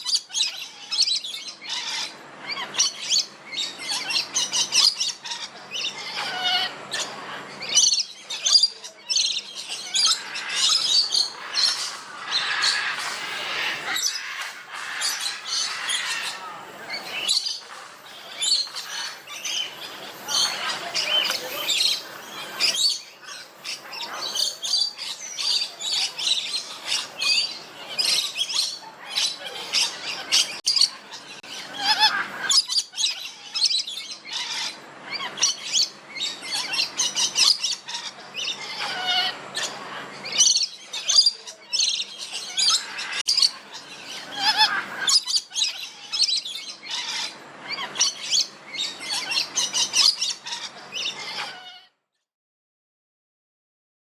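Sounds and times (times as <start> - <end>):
birds chirping and squawking: 0.0 - 52.0.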